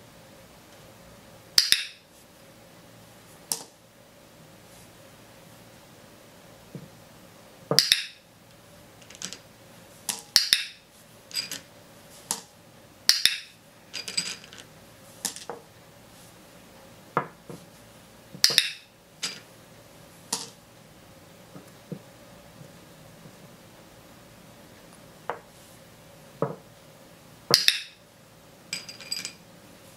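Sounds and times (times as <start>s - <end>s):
plastic toys clattering on tabletop: 9.0s - 9.4s, 11.3s - 11.7s, 13.9s - 15.6s, 18.4s - 19.5s, 28.7s - 29.4s.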